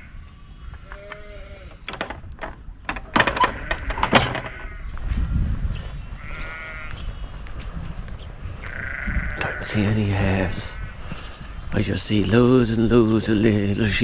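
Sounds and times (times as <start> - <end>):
knocks: 0.9 - 4.8
sheep bleating: 6.2 - 7.0, 8.6 - 11.0.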